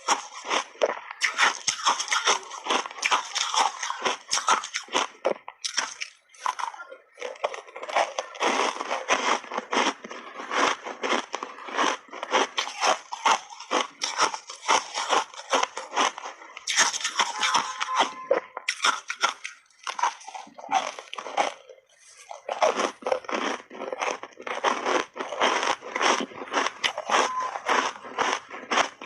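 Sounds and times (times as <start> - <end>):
ice chunks being crunched: 0.0 - 18.0, 18.7 - 29.0.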